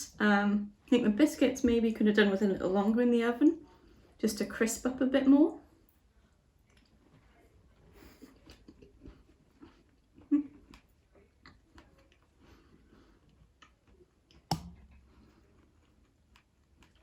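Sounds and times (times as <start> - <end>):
person chewing biscuit: 6.1 - 17.0.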